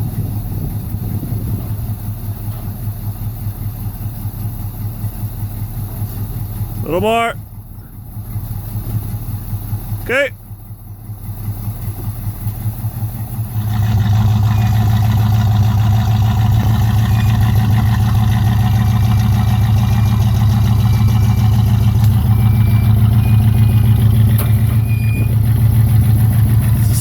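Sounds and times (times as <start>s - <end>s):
car engine pulling away: 0.0s - 6.9s, 7.6s - 10.0s, 10.6s - 27.0s.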